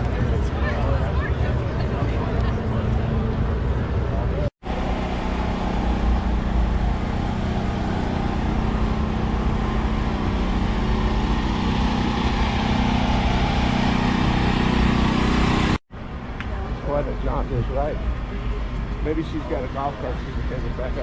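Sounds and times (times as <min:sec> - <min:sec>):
car engine running steadily: 0:04.6 - 0:15.8.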